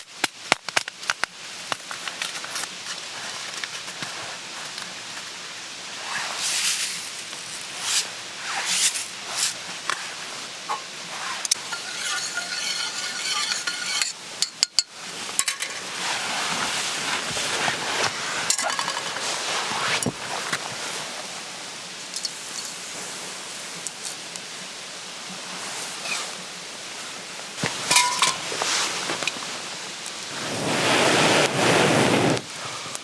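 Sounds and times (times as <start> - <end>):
food sizzling: 5.9 - 21.0, 27.6 - 32.3
metal cookware clinking and scraping: 11.5 - 16.0, 27.6 - 28.5
ringing scrape: 11.6 - 14.2.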